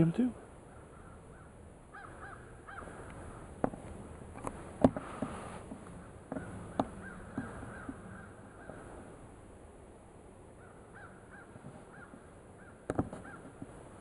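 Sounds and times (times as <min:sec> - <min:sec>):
crows cawing faintly: 0:00.6 - 0:09.2, 0:10.5 - 0:13.8
sharp clicks and knocks: 0:12.9 - 0:13.7.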